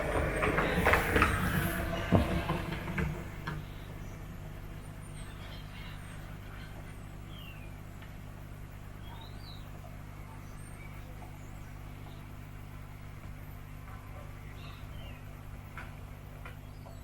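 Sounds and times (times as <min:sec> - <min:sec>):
model train humming: 0:00.0 - 0:05.2.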